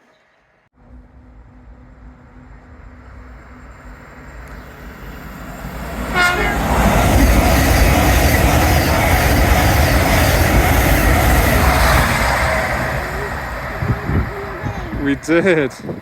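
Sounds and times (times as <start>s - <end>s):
train wheels rushing on rail: 1.3s - 16.0s
train horn toot: 6.1s - 7.1s.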